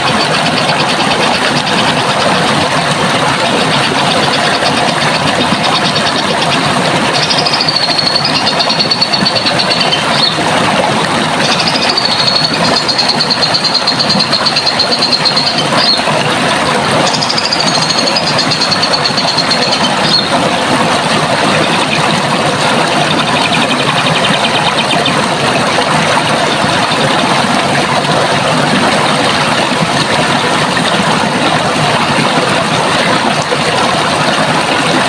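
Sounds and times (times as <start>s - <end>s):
running water rushing: 0.0s - 35.0s
bird singing trilled phrases: 7.2s - 10.4s, 11.4s - 16.1s, 17.0s - 20.3s, 23.3s - 25.2s.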